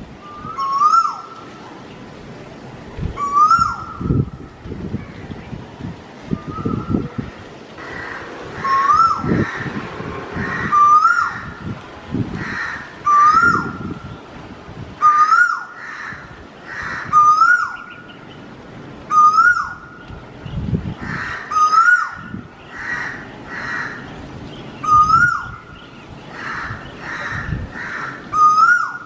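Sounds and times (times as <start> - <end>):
bird whistled call: 0.2 - 1.3, 6.4 - 7.0, 28.4 - 29.0
harsh bird calls: 6.3 - 11.7, 12.3 - 14.4, 15.0 - 29.0.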